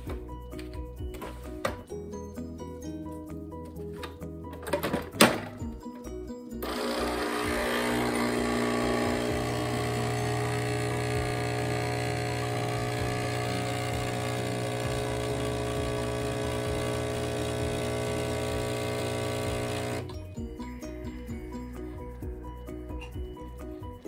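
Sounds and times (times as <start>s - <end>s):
espresso machine pump humming: 6.6s - 20.1s.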